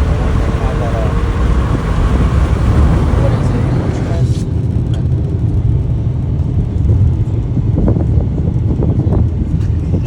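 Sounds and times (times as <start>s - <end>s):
car driving on road: 0.0s - 10.0s
wind buffeting microphone: 0.0s - 10.0s.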